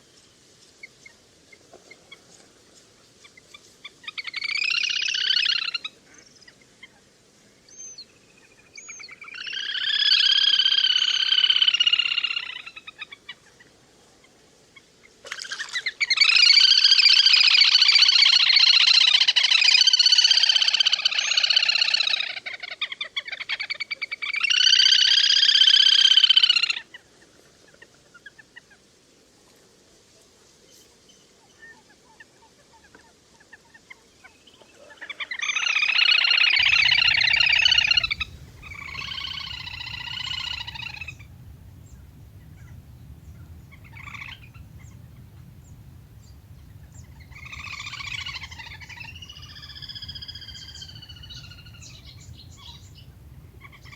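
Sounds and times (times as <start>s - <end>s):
grebe trilling calls: 36.6s - 53.9s.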